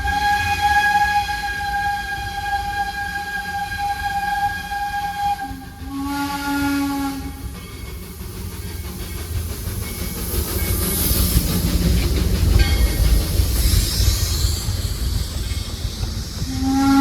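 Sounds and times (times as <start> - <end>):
steam locomotive whistle: 0.0 - 7.5, 16.5 - 17.0
train rumbling: 0.0 - 17.0
steam hissing: 0.1 - 17.0.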